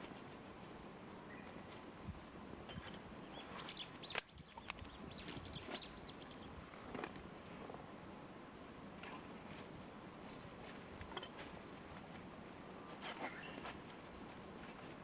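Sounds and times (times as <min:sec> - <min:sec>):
songbird chirping: 0:03.2 - 0:06.6.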